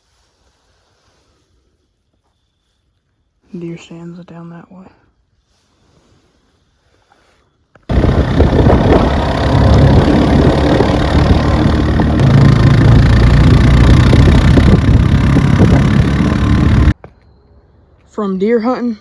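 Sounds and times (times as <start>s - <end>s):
atv engine running: 7.9s - 17.0s.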